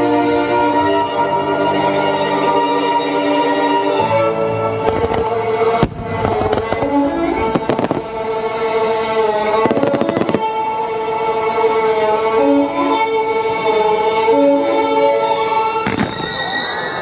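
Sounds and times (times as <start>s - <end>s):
orchestral music over loudspeakers: 0.0s - 17.0s
fireworks bursting and crackling: 4.6s - 10.8s, 15.7s - 16.8s.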